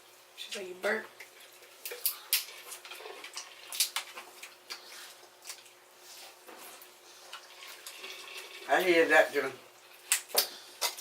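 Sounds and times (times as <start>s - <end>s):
shells cracking and snapping: 1.8s - 4.8s.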